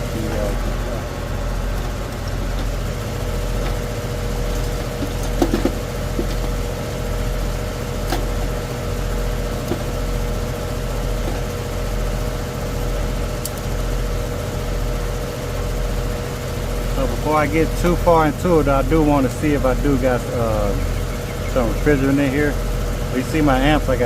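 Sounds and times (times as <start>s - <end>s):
air conditioner fan hum: 0.0s - 24.0s.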